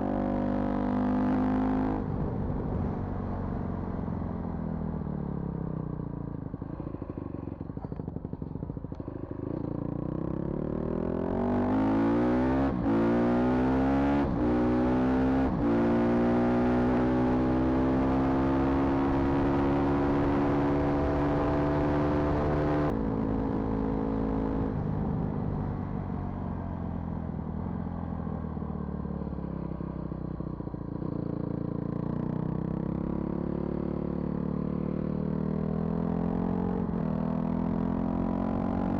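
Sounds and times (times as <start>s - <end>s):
vehicle engine accelerating hard: 8.9s - 25.6s.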